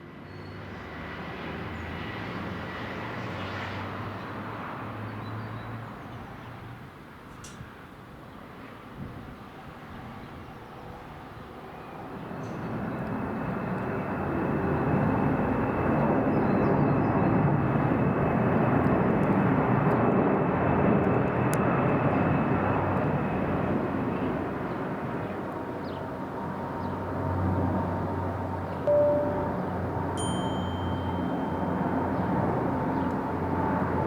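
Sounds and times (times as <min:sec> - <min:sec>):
aircraft flying low overhead: 0:00.0 - 0:34.0
steady high whine: 0:28.8 - 0:32.9.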